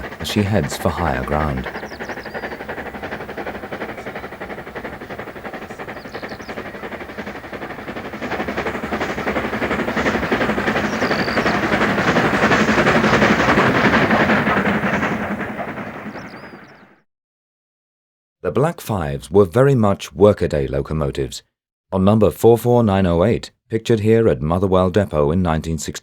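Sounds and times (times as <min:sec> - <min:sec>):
steam locomotive exhaust beats: 0:00.0 - 0:17.0.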